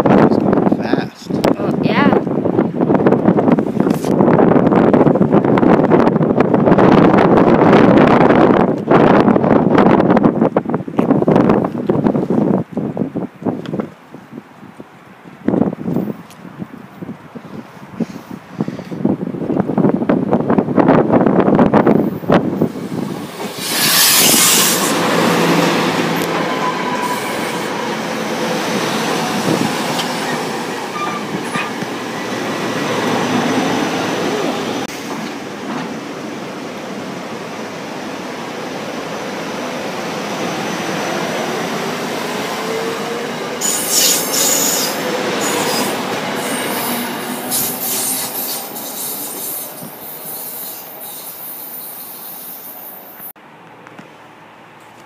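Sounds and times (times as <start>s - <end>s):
train wheels running on rails: 22.6s - 36.2s, 41.8s - 53.3s.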